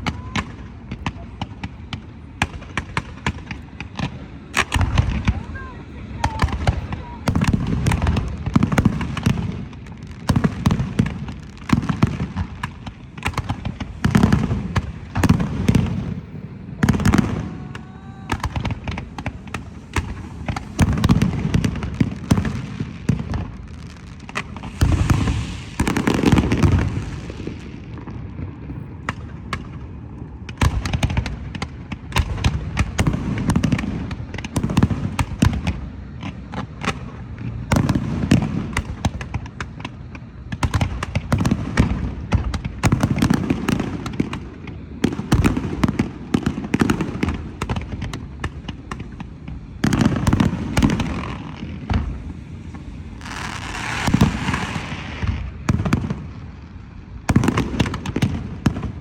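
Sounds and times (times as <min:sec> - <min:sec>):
firework booms and crackling: 0:00.0 - 0:59.0
firework whistle: 0:16.8 - 0:23.2, 0:23.9 - 0:27.9, 0:49.9 - 0:56.0.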